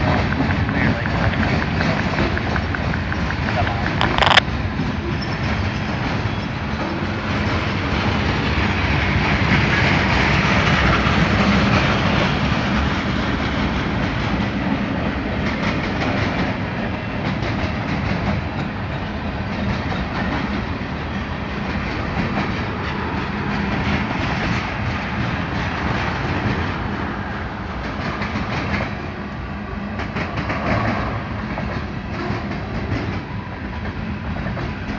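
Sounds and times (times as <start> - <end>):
wheels clacking over rail joints: 0.0 - 27.0
railroad cars rolling: 0.0 - 34.9.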